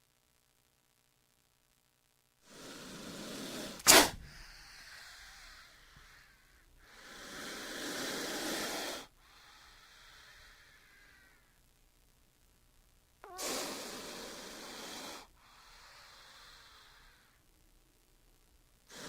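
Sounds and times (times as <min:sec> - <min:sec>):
snake hissing: 0:02.4 - 0:11.5, 0:13.2 - 0:17.4
sharp loud puff: 0:03.7 - 0:04.4.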